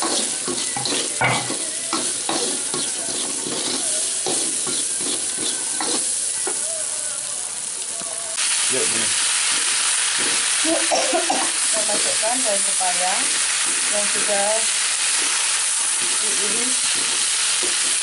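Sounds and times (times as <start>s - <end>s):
spatula scraping and knocking pan: 0.0s - 6.1s, 16.8s - 18.0s
food sizzling in hot oil: 0.0s - 18.0s.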